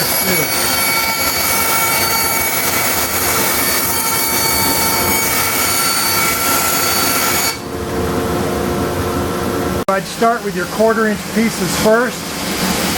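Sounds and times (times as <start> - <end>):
bandsaw cutting wood: 0.0 - 7.6.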